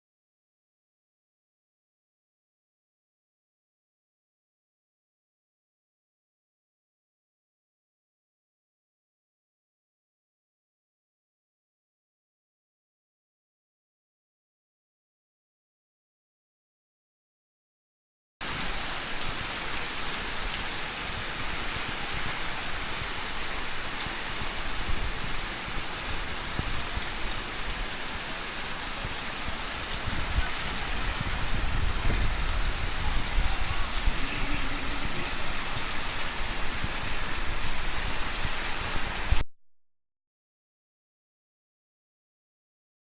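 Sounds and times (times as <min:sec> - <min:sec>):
rain falling: 0:18.4 - 0:39.4.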